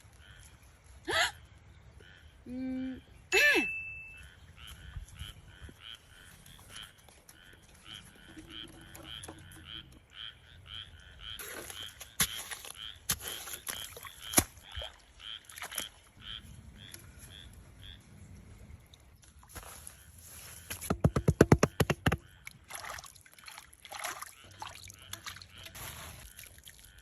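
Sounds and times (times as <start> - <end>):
rhythmic animal call: 4.2 - 14.4.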